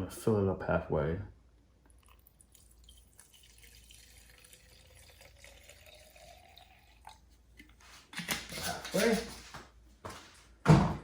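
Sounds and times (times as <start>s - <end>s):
fuel trickling into tank: 1.8s - 7.8s.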